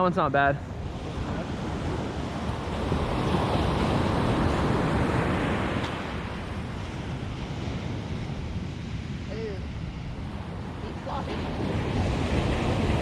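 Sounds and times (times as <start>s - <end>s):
ocean surf breaking: 0.0s - 13.0s
wind rumbling on microphone: 0.0s - 13.0s.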